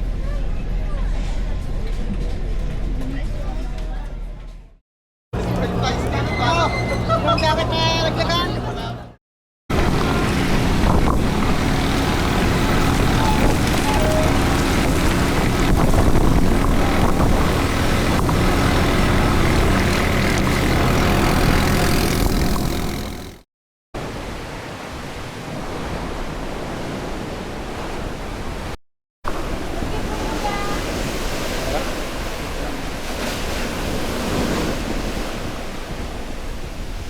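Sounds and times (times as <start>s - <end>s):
engine rumbling: 5.4s - 23.4s
wind noise: 9.7s - 22.9s
water rushing: 9.7s - 23.4s, 24.0s - 37.0s.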